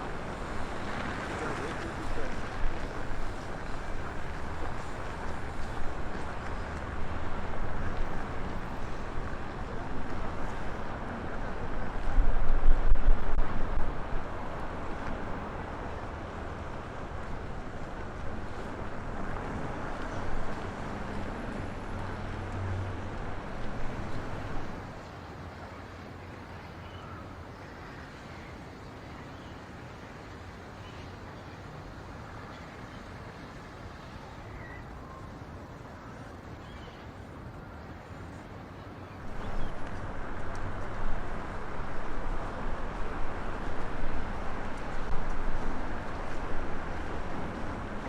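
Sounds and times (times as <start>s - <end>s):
storm wind buffeting microphone: 0.0s - 25.0s, 39.2s - 48.0s.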